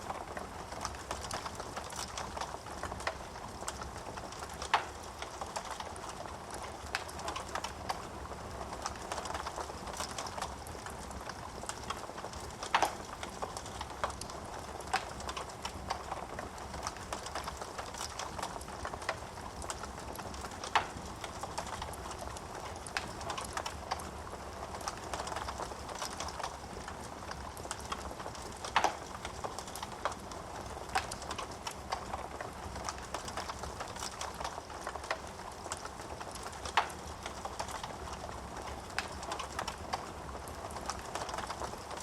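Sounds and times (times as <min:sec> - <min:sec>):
wood fire burning: 0:00.0 - 0:42.0.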